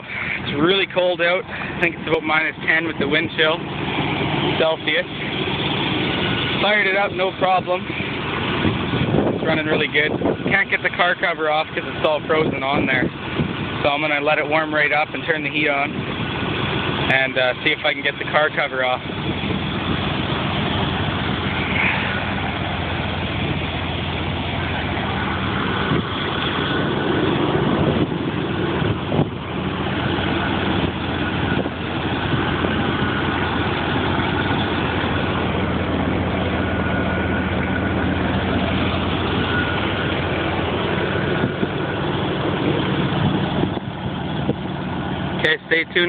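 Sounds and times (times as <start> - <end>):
car engine idling: 0.0 - 46.0.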